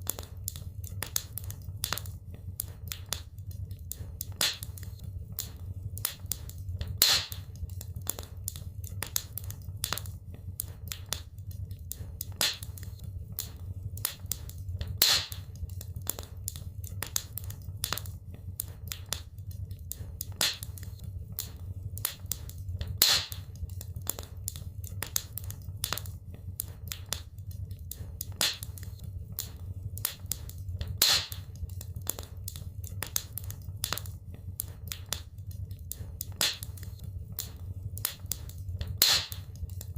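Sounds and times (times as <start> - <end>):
wood fire crackling: 0.0 - 39.9
loud fire pop: 7.0 - 7.4, 31.0 - 31.4.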